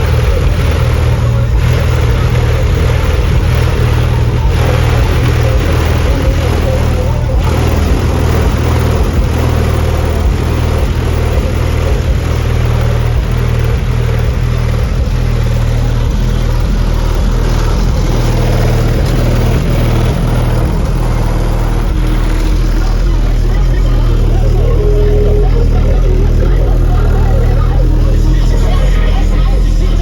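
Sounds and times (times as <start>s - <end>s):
car engine rumbling: 0.0s - 30.0s.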